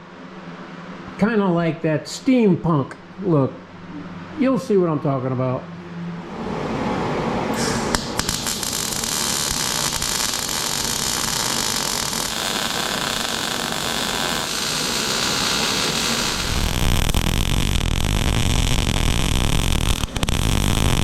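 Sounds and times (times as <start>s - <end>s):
arc welding hiss: 7.6s - 21.0s
welding arc striking clicks: 7.6s - 21.0s.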